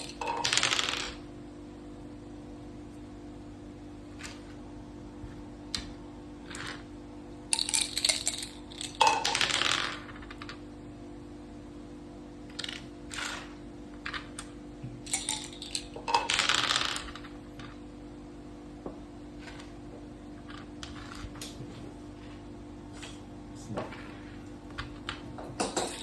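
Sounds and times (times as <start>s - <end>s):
dice and pieces clattering on board: 0.0s - 1.3s, 6.5s - 6.8s, 7.5s - 10.6s, 12.5s - 17.8s, 20.4s - 21.6s, 24.7s - 26.0s.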